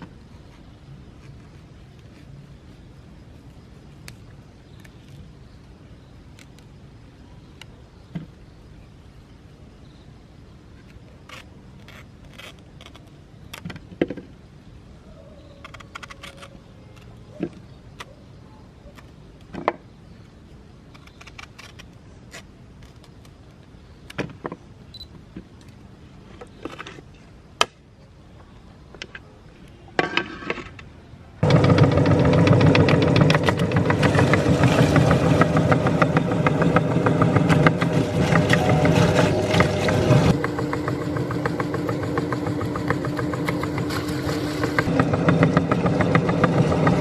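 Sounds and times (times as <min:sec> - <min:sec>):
clicks and handling noises: 0:15.6 - 0:18.2.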